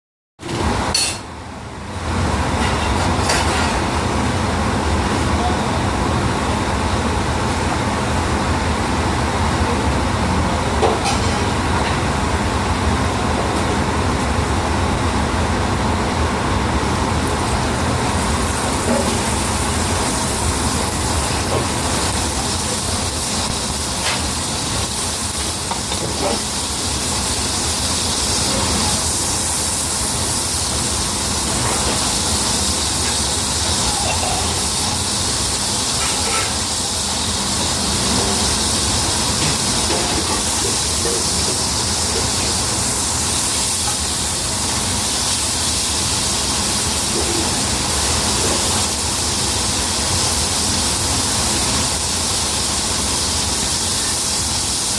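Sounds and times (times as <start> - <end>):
meat sizzling in a frying pan: 17.3 - 54.9.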